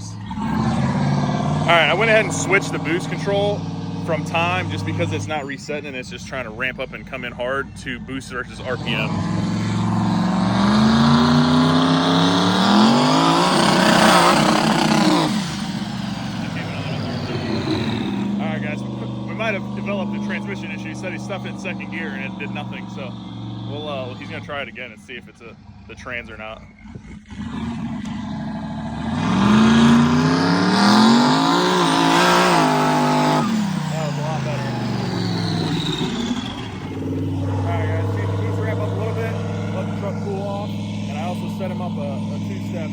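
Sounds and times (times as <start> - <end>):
truck engine accelerating: 0.0 - 42.9.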